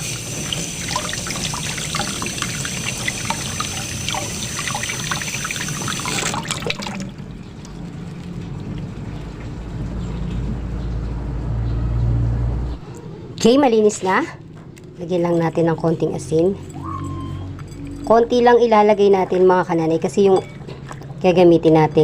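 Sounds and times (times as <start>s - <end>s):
water pouring and splashing: 0.0s - 10.4s.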